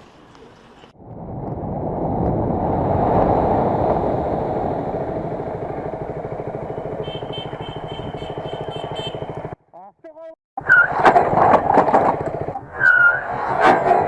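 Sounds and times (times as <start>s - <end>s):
rushing air: 0.9s - 7.9s
motorcycle engine pulsing: 3.2s - 9.6s.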